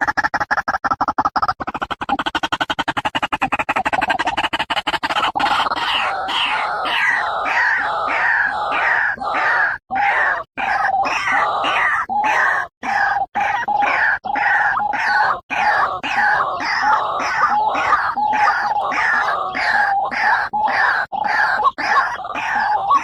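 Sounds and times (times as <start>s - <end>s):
bird calling in harsh pulses: 1.4s - 23.0s.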